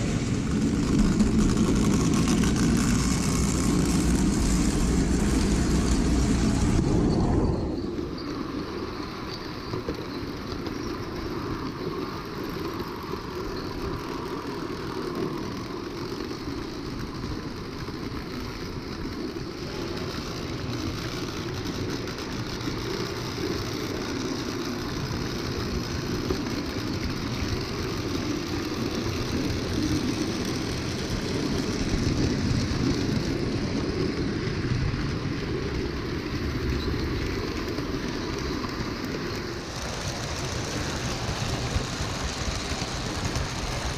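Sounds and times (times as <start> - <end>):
wheels rumbling on rails: 0.0 - 43.9
toy train motor whirring: 11.9 - 43.9.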